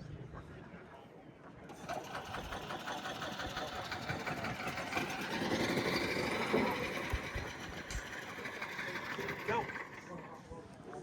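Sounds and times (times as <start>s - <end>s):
small piston engine running: 1.7s - 10.4s.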